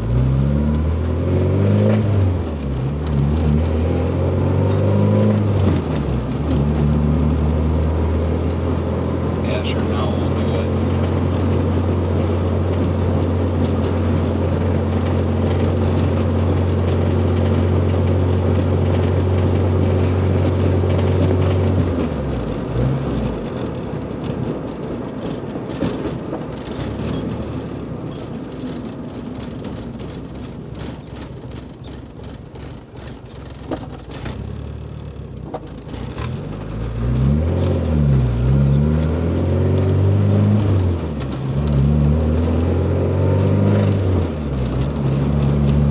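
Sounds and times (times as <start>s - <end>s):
engine revving: 0.0s - 24.5s, 32.6s - 45.9s
car engine knocking: 8.9s - 37.0s
engine clicks: 23.4s - 38.0s.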